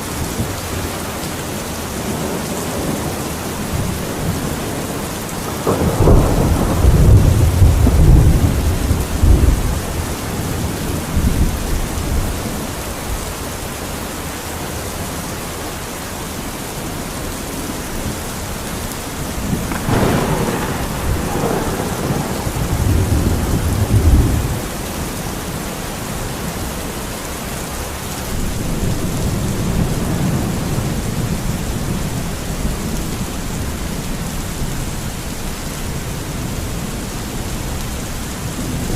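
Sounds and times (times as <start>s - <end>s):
heavy rain: 0.0s - 38.9s
thunder rumbling: 1.9s - 12.6s, 19.2s - 26.7s
thunder crack: 5.5s - 10.2s, 19.5s - 24.8s.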